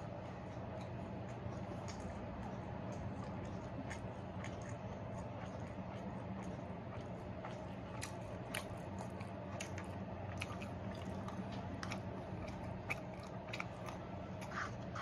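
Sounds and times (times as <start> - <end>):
person chewing crunchy food: 0.0 - 15.0
steady low hum: 0.0 - 15.0.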